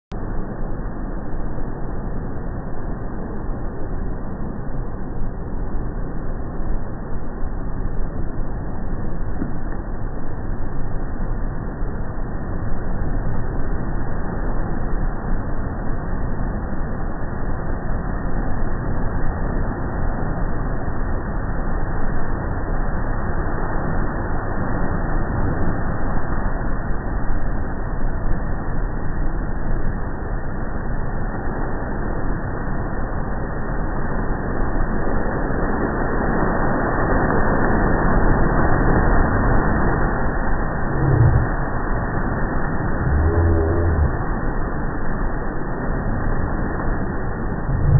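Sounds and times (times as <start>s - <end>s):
wind: 0.0s - 47.9s
ocean surf rushing: 34.7s - 47.9s.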